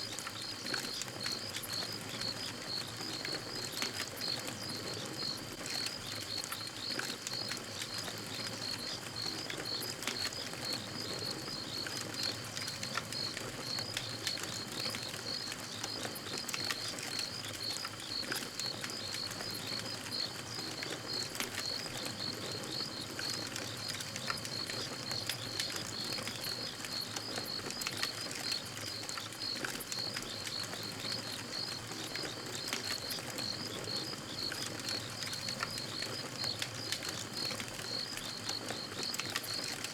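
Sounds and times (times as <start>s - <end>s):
campfire crackling and popping: 0.1s - 39.9s
crickets chirping: 0.4s - 39.9s.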